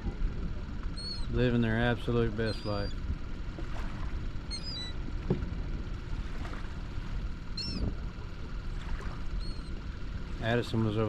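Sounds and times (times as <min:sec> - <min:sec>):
steady low rumble: 0:00.0 - 0:11.0
seagulls calling: 0:00.9 - 0:01.4, 0:02.4 - 0:03.0, 0:04.4 - 0:05.0, 0:07.5 - 0:08.0, 0:09.2 - 0:09.8.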